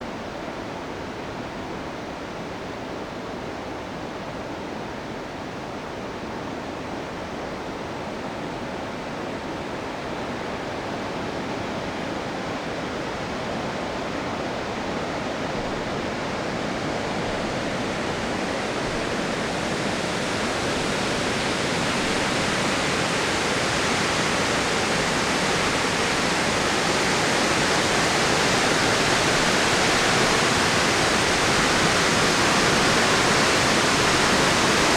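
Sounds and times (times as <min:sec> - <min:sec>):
dam water rushing: 0:12.6 - 0:34.9.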